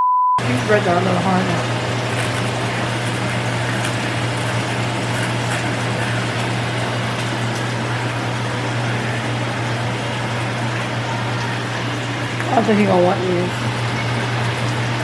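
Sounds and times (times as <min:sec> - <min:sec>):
food crackling in a pan: 0:00.4 - 0:15.0
range hood fan humming: 0:00.4 - 0:15.0.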